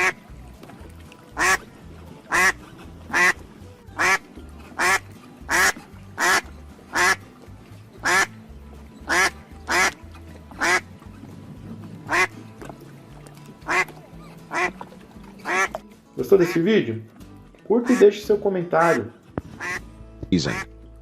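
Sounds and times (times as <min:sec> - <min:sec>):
duck quacking: 0:00.0 - 0:00.2, 0:01.4 - 0:01.6, 0:02.3 - 0:03.4, 0:04.0 - 0:04.2, 0:04.8 - 0:07.2, 0:08.0 - 0:08.3, 0:09.1 - 0:10.9, 0:12.1 - 0:12.4, 0:13.6 - 0:13.9, 0:14.5 - 0:14.8, 0:15.4 - 0:15.7, 0:18.8 - 0:19.8, 0:20.4 - 0:20.7
background music: 0:00.0 - 0:21.0.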